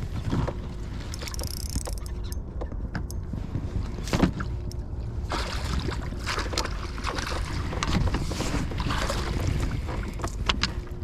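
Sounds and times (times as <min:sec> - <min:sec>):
wind rumbling on microphone: 0:00.0 - 0:11.0
water splashing: 0:05.2 - 0:10.1.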